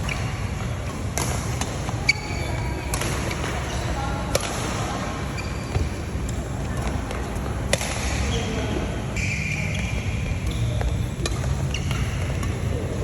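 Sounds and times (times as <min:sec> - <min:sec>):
shoes squeaking on court floor: 0:00.0 - 0:04.0, 0:05.3 - 0:06.0, 0:08.2 - 0:12.6
racket hitting shuttlecock: 0:01.0 - 0:04.8, 0:07.7 - 0:08.3, 0:10.5 - 0:12.6.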